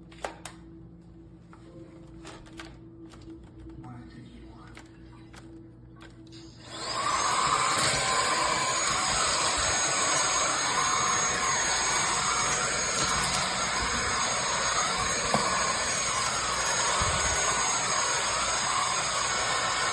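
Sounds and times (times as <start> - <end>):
stick vacuum running: 6.6 - 19.9.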